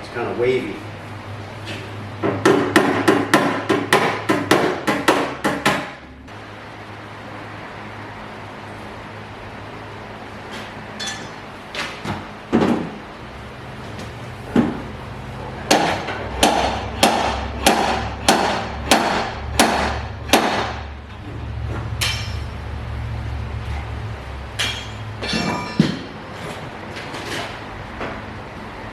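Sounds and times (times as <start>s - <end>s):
hammer striking sheet metal: 15.7s - 20.9s.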